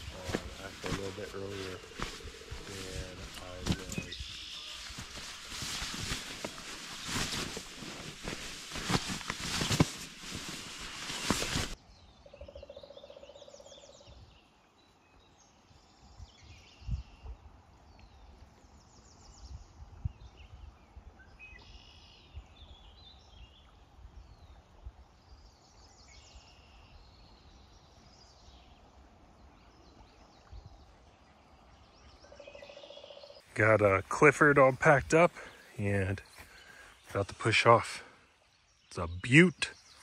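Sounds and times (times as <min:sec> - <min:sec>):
faint low thuds: 0:00.0 - 0:09.9
songbirds singing and calling: 0:00.0 - 0:40.0.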